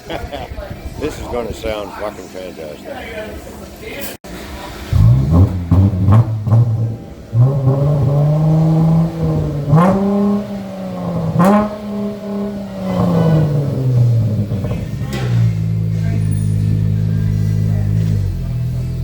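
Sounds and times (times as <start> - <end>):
car engine revving: 4.3 - 19.0.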